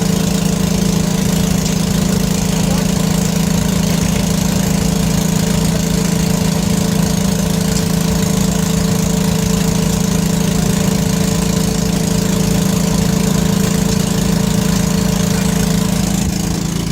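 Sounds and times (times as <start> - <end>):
engine idling: 0.0 - 16.9.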